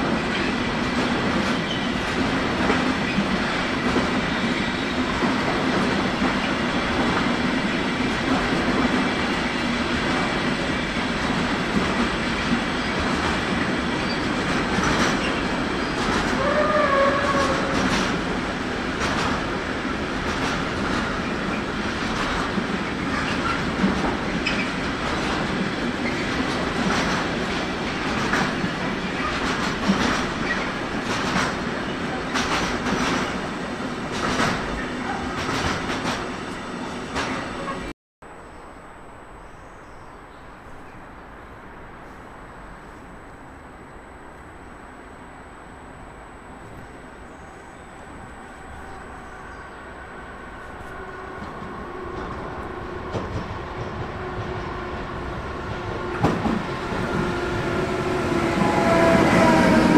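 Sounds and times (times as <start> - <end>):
train wheels clicking over rails: 0.0 - 37.8, 50.6 - 59.9.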